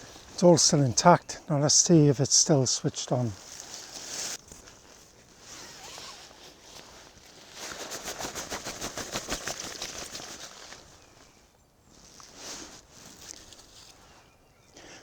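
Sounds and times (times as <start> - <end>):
rustling and crackling: 0.0 - 14.3
soft brushing: 1.9 - 14.3.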